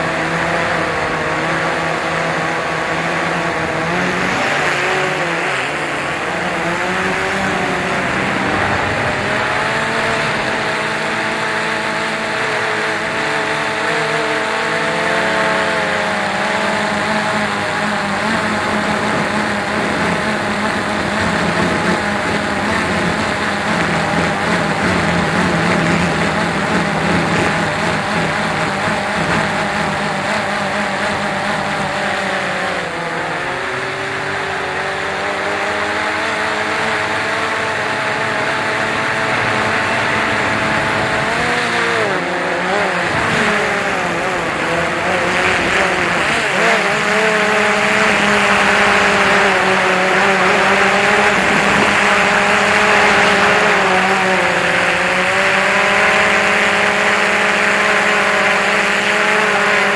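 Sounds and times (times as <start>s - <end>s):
drone propellers whirring: 0.0s - 59.9s
rushing noise: 5.2s - 11.3s.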